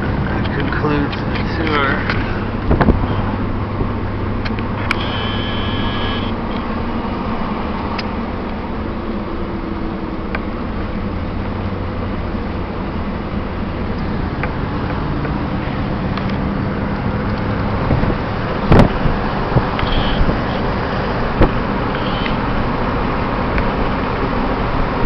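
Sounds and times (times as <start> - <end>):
car road and engine noise: 0.0 - 25.0
short high tone: 4.9 - 6.3.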